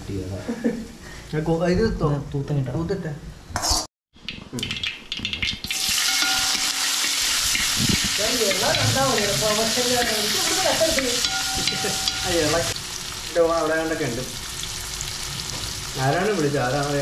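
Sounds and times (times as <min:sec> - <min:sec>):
food sizzling in hot oil: 0:03.6 - 0:17.0.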